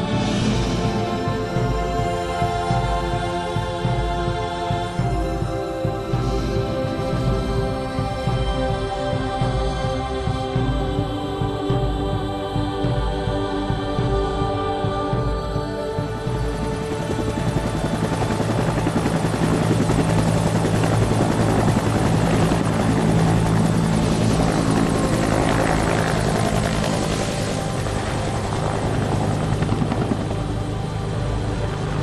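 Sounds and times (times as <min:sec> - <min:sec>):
propeller aircraft passing overhead: 0:16.5 - 0:32.0.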